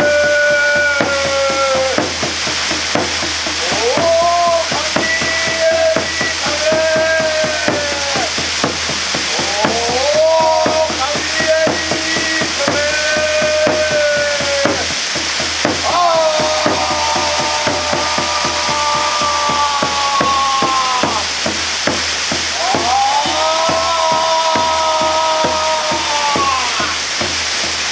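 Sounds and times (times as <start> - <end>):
person singing long held notes: 0.0 - 2.2, 15.8 - 21.5, 22.5 - 27.1
waterfall rushing: 0.0 - 27.9.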